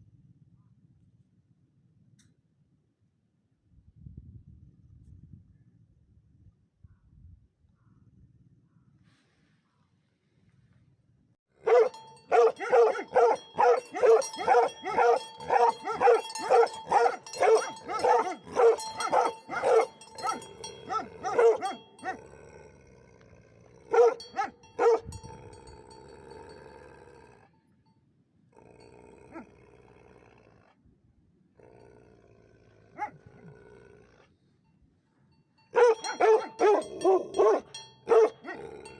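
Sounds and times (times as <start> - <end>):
dogs barking deeply: 11.6 - 25.6, 32.8 - 33.8, 35.7 - 38.9.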